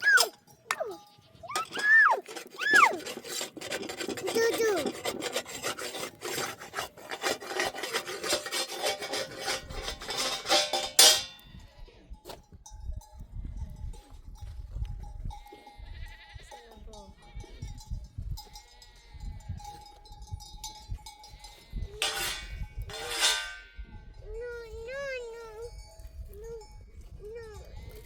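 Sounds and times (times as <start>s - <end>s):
shepherd calling: 0.0s - 3.2s
sheep bells clinking: 0.0s - 5.8s, 8.4s - 28.0s.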